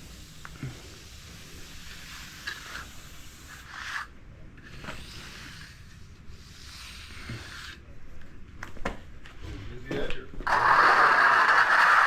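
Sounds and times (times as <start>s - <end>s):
finishing tool scraping wet concrete: 6.5s - 7.8s.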